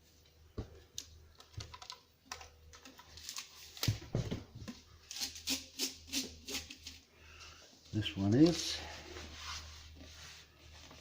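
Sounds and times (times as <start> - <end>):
items being handled clicking: 0.8 - 4.0.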